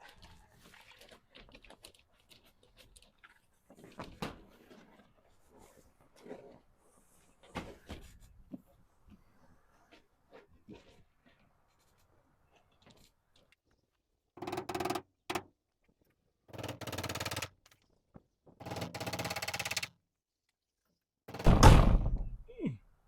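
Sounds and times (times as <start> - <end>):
power tool rattling: 14.4 - 15.5, 16.5 - 17.8, 18.6 - 19.9.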